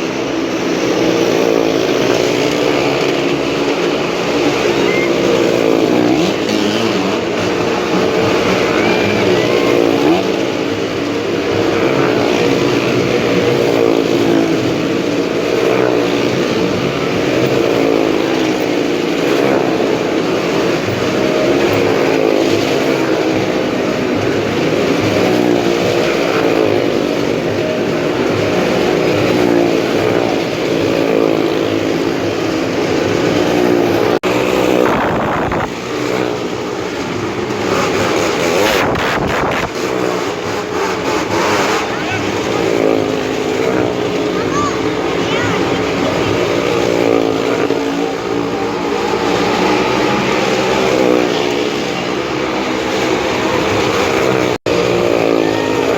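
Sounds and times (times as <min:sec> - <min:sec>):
motorcycle and car engines revving: 0:00.0 - 0:55.9.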